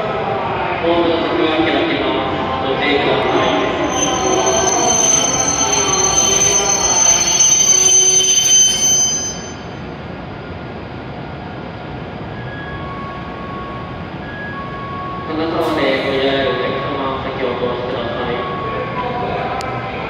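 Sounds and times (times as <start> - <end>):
train brakes squealing: 3.0 - 9.9, 12.3 - 20.0
whining tones: 3.3 - 10.0.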